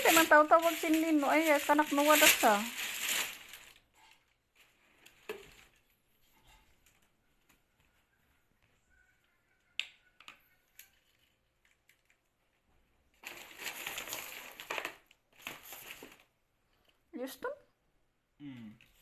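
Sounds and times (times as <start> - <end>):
rustling: 0.0 - 8.1, 10.8 - 16.3.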